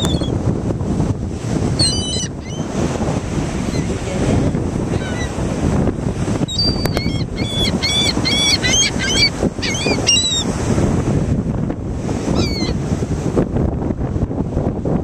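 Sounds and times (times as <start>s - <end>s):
gulls calling: 0.0s - 0.4s, 1.8s - 2.8s, 4.9s - 5.4s, 6.5s - 10.5s, 12.4s - 12.8s
wind noise on microphone: 0.0s - 15.0s.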